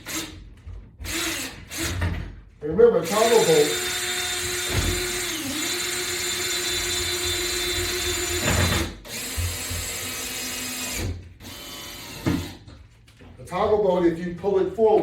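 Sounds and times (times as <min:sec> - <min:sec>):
power drill whining: 0:00.0 - 0:02.2, 0:03.0 - 0:12.7.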